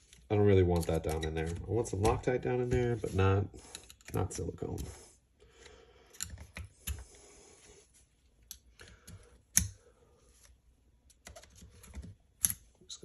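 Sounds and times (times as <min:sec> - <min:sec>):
small tools clicking and tapping: 0:00.1 - 0:02.2.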